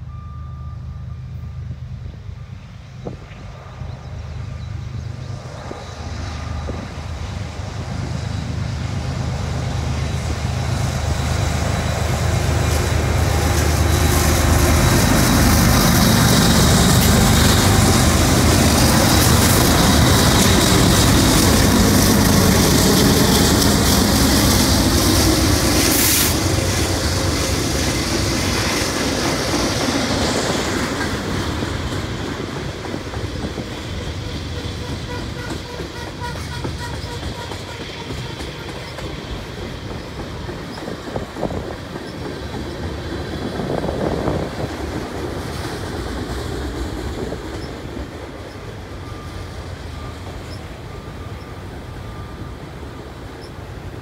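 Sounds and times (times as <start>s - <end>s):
diesel locomotive engines droning: 0.0s - 54.0s
tank cars rumbling over rails: 9.1s - 45.4s.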